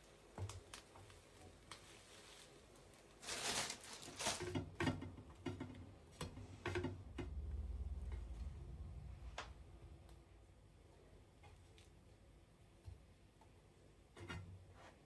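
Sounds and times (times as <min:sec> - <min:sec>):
low rumble: 0:07.0 - 0:10.9.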